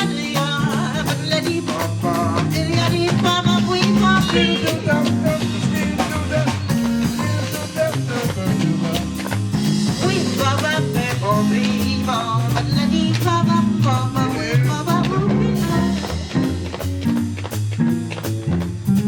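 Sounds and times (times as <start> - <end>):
band music: 0.0 - 19.0
wavering lead melody: 3.1 - 16.7.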